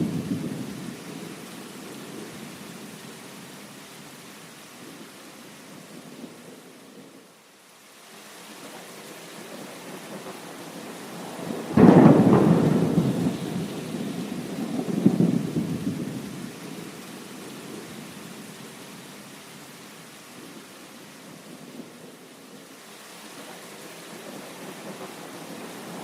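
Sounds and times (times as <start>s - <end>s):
steady rain: 0.0s - 26.0s
thunder cracking and rumbling: 11.4s - 16.4s.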